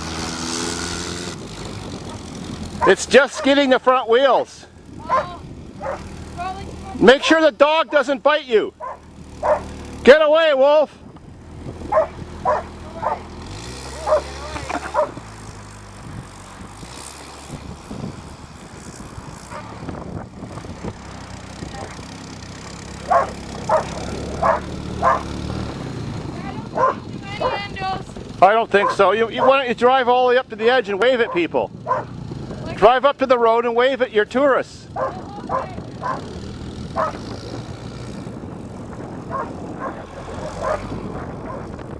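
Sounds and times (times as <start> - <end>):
ride-on vehicle engine running: 0.0 - 41.9
dog barking: 2.8 - 3.6, 5.1 - 6.1, 8.8 - 9.7, 11.9 - 13.3, 14.0 - 14.3, 14.9 - 15.2, 23.1 - 25.3, 26.7 - 27.6, 28.8 - 29.6, 31.3 - 32.1, 35.0 - 36.3, 37.0 - 37.2, 39.3 - 41.7.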